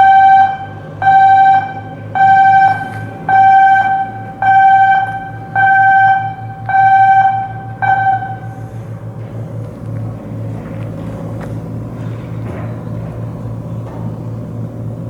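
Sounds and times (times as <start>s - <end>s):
electronic alarm beeping: 0.0s - 8.7s
low machinery hum: 0.0s - 15.0s.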